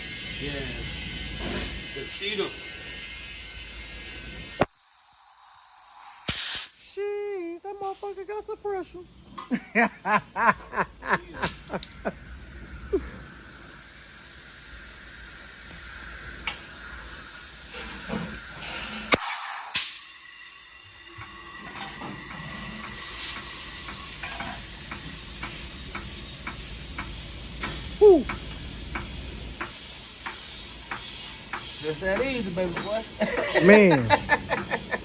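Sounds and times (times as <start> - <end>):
compressed air hissing into tire: 0.0 - 7.2, 10.4 - 35.0
tire bead sharp pop: 4.6 - 4.8, 6.0 - 6.8, 19.1 - 20.1.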